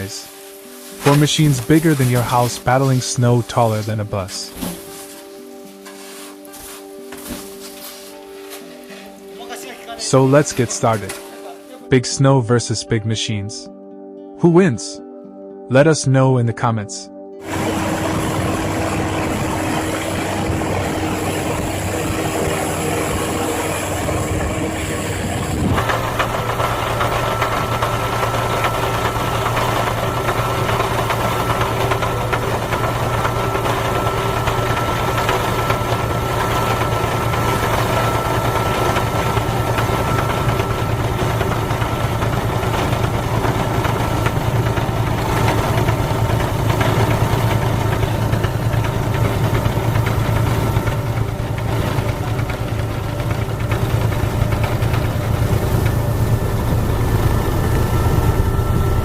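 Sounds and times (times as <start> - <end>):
snow-clearing machinery engine: 0.0 - 12.0, 17.4 - 59.0
deep engine hum with whine: 17.4 - 59.0.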